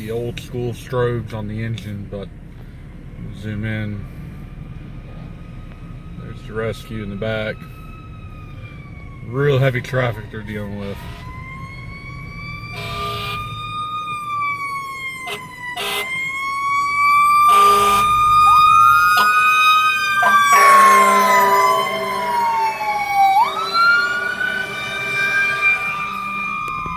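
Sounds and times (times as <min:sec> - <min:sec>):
emergency sirens wailing: 0:02.2 - 0:26.9
second siren sweeping: 0:10.2 - 0:26.9
horn blasts: 0:12.8 - 0:13.6, 0:15.2 - 0:16.2, 0:17.5 - 0:26.9.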